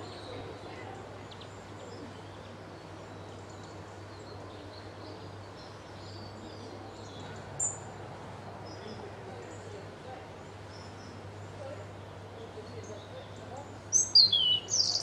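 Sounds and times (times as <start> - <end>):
background hiss: 0.0 - 15.0
songbirds chirping faintly: 0.0 - 15.0
sharp high bird chirp: 14.0 - 15.0.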